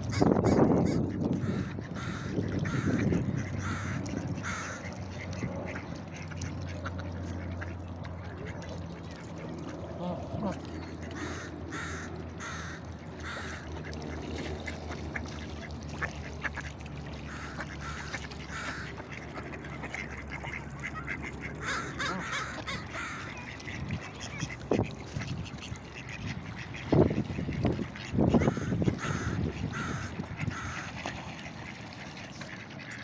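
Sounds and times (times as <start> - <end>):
ducks quacking: 0.0 - 33.0.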